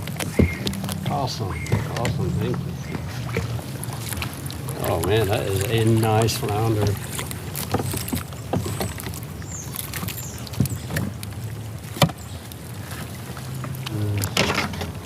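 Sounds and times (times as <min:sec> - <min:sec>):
fish knocking on plastic hull: 0:00.0 - 0:05.2
fishing gear clicking and knocking: 0:00.0 - 0:12.2, 0:12.9 - 0:15.0.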